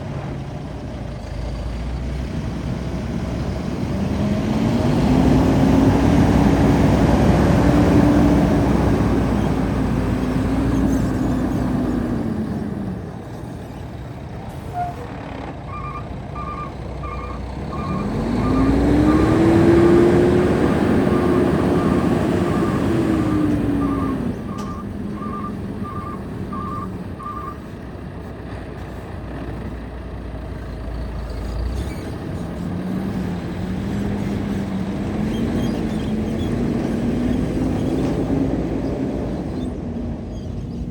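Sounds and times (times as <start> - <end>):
truck diesel engine revving: 0.0 - 40.9
electronic beeping alarm: 15.7 - 19.7, 21.0 - 27.6.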